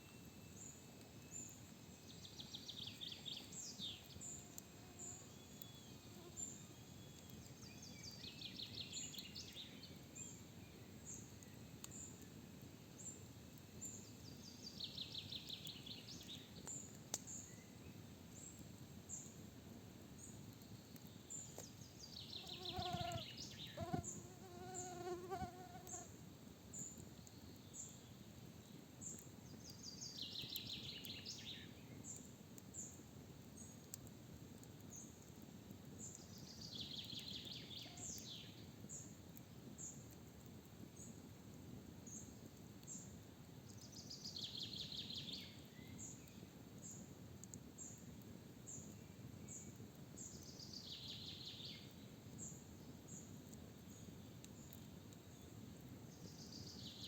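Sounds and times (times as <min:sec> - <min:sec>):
flying insect buzzing: 0:22.4 - 0:26.1.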